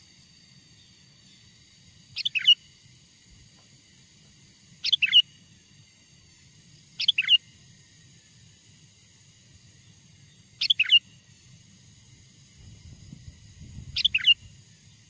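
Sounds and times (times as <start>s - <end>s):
bird calling: 2.1s - 2.6s, 4.8s - 5.3s, 7.0s - 7.4s, 10.6s - 11.2s, 13.7s - 15.0s.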